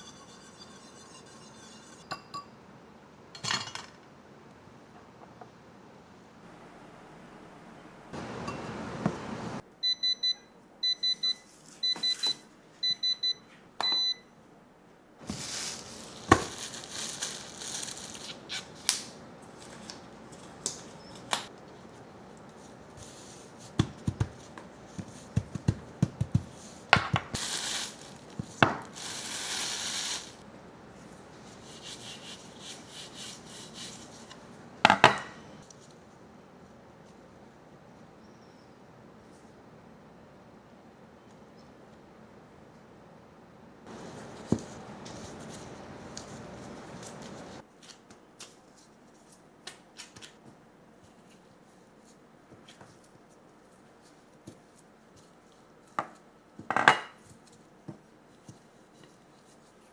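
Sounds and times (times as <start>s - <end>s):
kitchen rustling: 0.0s - 2.4s, 15.2s - 36.0s, 43.9s - 59.9s.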